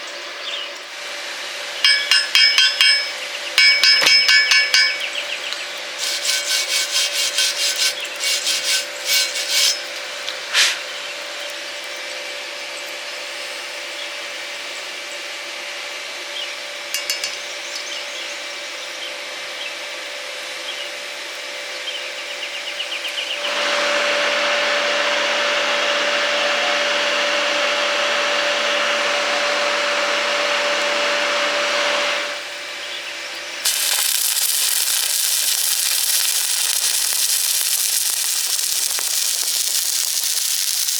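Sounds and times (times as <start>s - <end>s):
welding arc crackle: 1.8s - 5.1s, 6.0s - 10.0s, 33.6s - 40.9s
grinder grinding metal: 1.8s - 10.5s, 33.6s - 40.9s
sharp metal taps: 1.9s - 5.2s, 17.0s - 17.9s.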